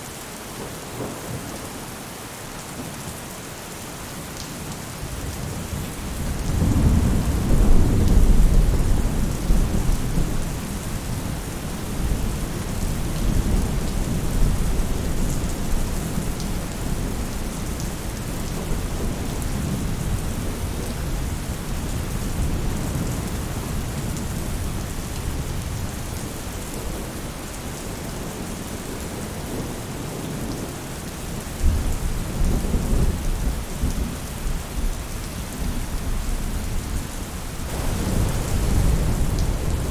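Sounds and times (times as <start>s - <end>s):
rain falling on a roof: 0.0s - 39.9s
rolling thunder: 6.1s - 11.3s, 37.7s - 39.9s.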